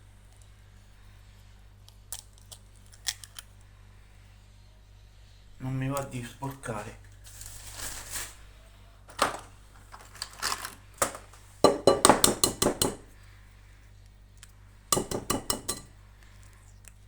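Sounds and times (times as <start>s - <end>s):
utensil clinking against bowl: 11.7s - 13.1s, 15.0s - 15.9s.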